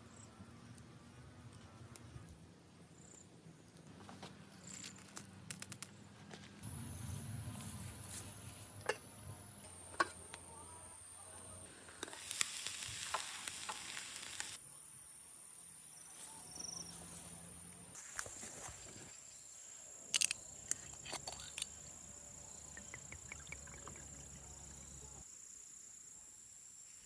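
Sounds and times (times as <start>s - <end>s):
fire pops and crackles: 4.7s - 6.6s, 11.8s - 14.6s
shrimp sizzling on a grill: 11.8s - 14.6s.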